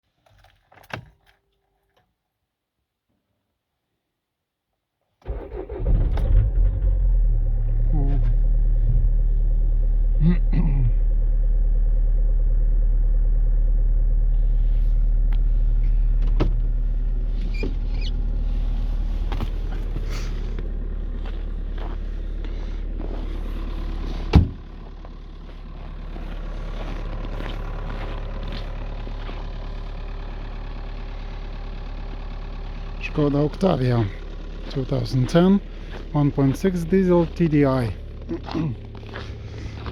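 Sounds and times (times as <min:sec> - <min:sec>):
diesel engine idling: 0:05.3 - 0:39.9.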